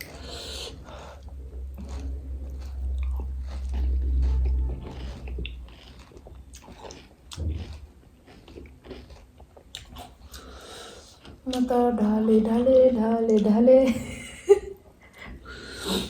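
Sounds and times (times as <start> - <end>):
deep low rumble: 0.0 - 6.7
person chewing crisp food: 0.0 - 11.7.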